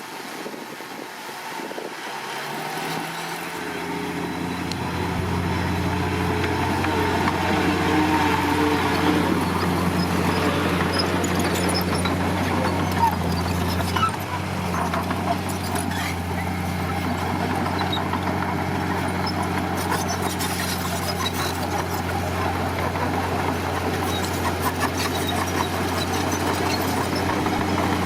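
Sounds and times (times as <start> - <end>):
heavy machine diesel engine running: 3.2 - 28.0
light clanks and rattles: 4.7 - 28.0.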